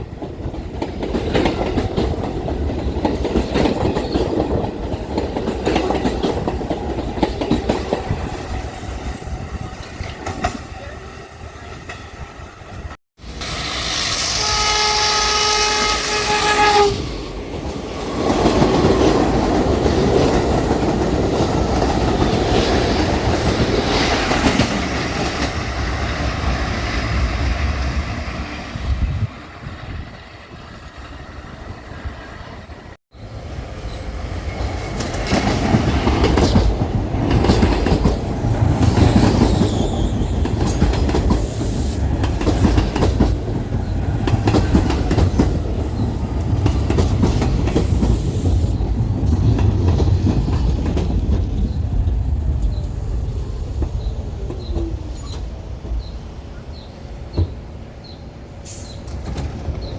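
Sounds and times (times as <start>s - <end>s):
train wheels rumbling and clattering: 0.0s - 11.0s, 16.9s - 59.9s
train horn blast: 13.5s - 17.1s.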